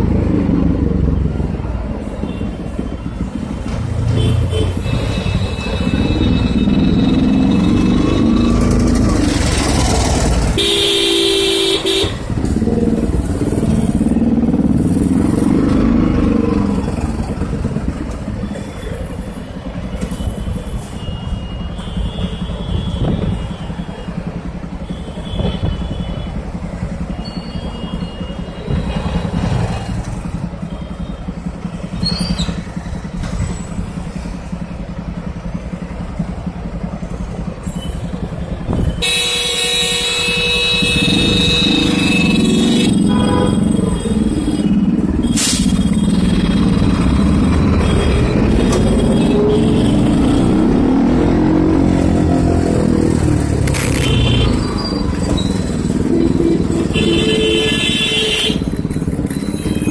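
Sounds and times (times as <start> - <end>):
traffic noise: 0.0 - 59.9
motorcycle engine revving: 3.3 - 18.3, 28.6 - 39.2, 39.9 - 59.9
vehicle horn toots: 10.5 - 12.3, 38.8 - 44.3, 53.8 - 54.7, 56.0 - 58.8.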